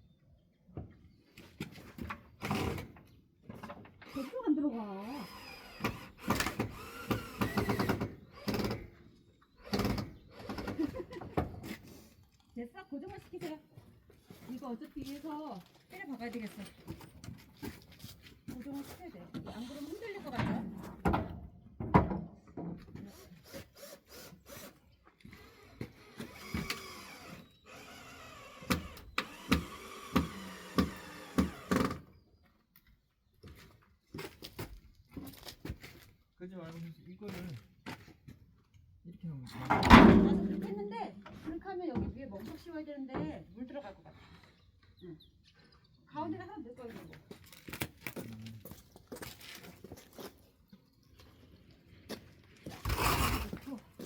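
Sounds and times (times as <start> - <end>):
cordless drill running: 5.0 - 8.9, 23.1 - 32.0
wooden pallet boards clattering: 39.7 - 40.8.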